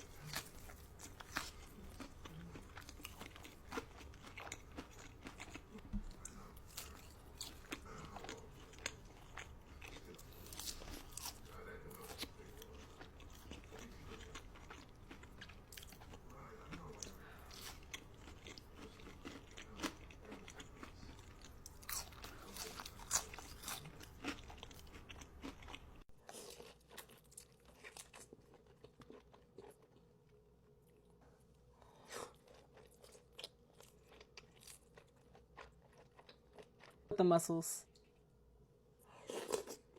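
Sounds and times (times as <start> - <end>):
crisp crunching bites and chewing: 0.0 - 30.0.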